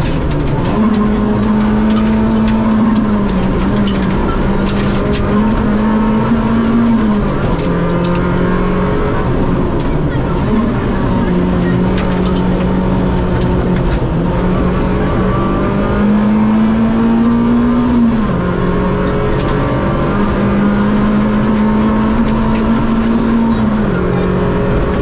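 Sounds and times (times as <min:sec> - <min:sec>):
rally car engine pulling hard: 0:00.0 - 0:25.0.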